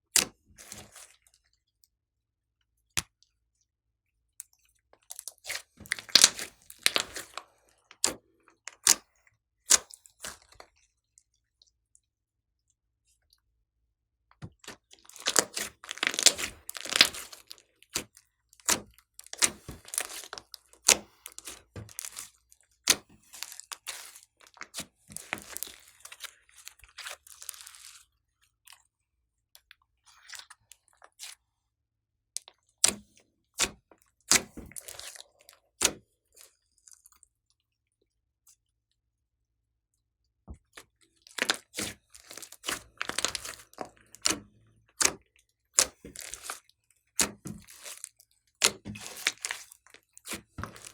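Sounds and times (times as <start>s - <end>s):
slime squeezed with wet pops: 5.2s - 7.4s, 14.6s - 28.0s, 40.7s - 50.9s.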